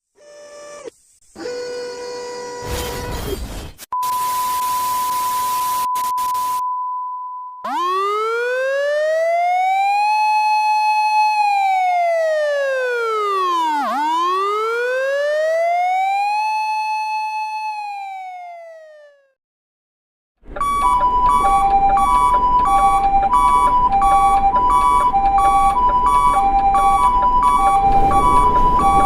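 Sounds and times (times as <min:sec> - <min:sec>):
high beep: 0:04.0 - 0:07.6
wailing siren: 0:07.6 - 0:19.4, 0:20.6 - 0:29.0.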